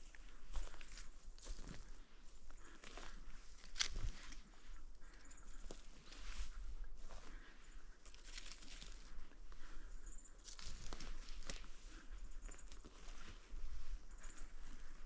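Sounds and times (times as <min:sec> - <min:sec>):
footsteps crunching through dry ground: 0:00.0 - 0:15.0.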